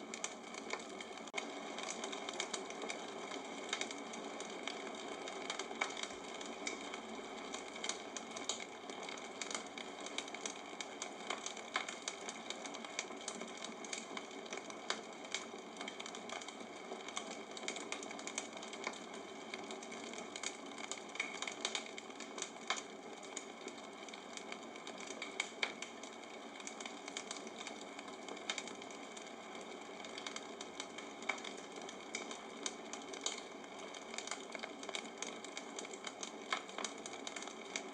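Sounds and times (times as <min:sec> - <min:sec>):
bonfire crackling and popping: 0:00.0 - 0:37.9.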